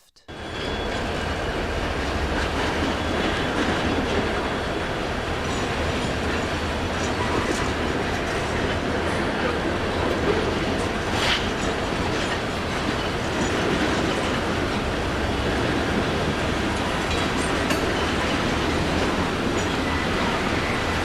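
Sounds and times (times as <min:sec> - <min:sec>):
high squeal of wheels: 0:00.3 - 0:01.8, 0:02.4 - 0:05.9, 0:07.0 - 0:08.2, 0:19.6 - 0:21.0
train rumbling on rails: 0:00.3 - 0:21.0.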